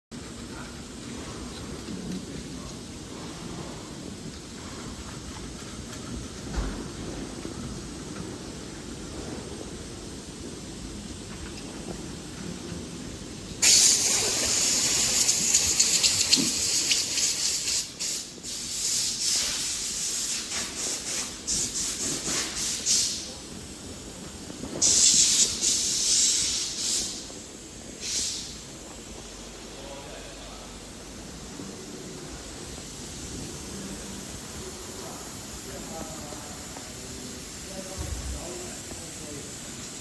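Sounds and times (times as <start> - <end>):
spray nozzle hissing bursts: 13.6 - 23.3, 24.8 - 27.4, 28.0 - 28.6.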